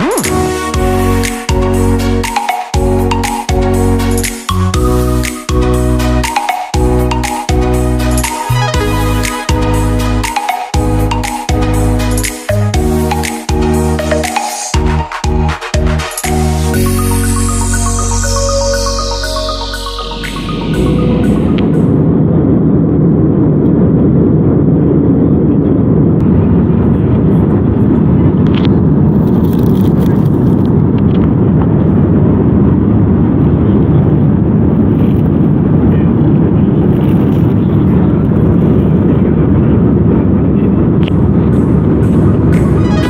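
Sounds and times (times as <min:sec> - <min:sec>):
airliner cabin engine rumble: 0:20.7 - 0:43.0.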